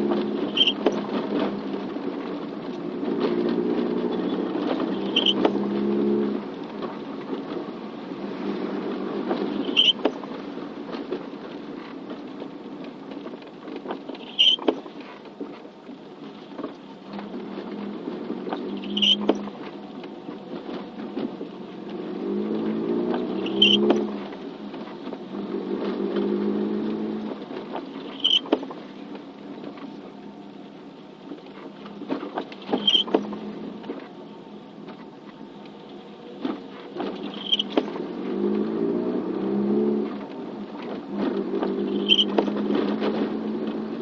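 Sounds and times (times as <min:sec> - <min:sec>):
light rain: 0:00.0 - 0:44.0
vehicle running: 0:00.0 - 0:44.0
sharp click and chirp: 0:18.8 - 0:19.4, 0:28.1 - 0:28.5, 0:37.2 - 0:37.8.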